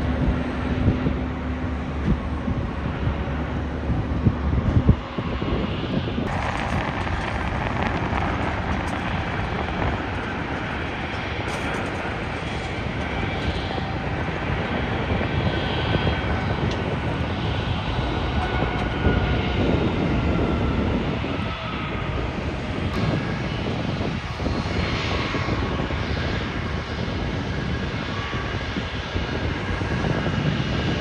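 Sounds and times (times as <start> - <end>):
jet engines roaring with whine: 5.1 - 31.0.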